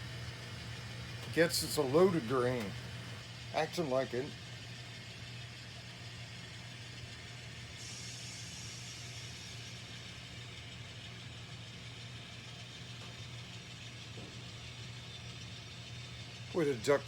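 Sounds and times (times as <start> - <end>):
model diesel engine hum: 0.0 - 4.3.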